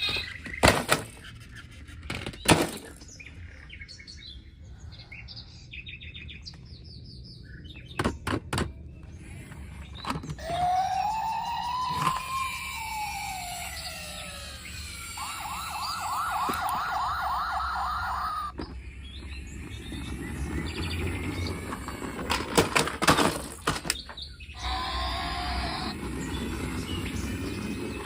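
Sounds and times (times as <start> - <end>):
electronic siren-like wail: 10.4 - 18.6, 24.6 - 27.3.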